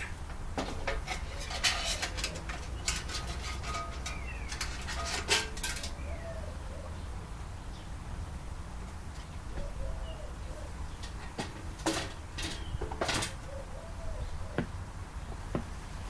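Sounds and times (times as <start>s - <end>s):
clicks and knocks of tools: 0.6s - 6.0s.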